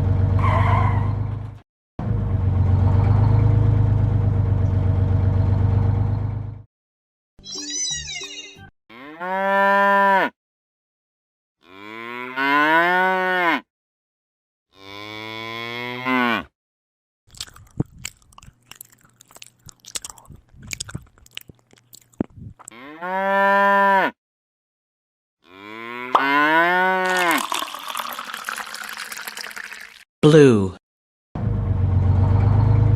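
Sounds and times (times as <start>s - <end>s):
crunching clicks like chewing: 17.3s - 22.8s
animal calls like mooing: 25.4s - 27.1s.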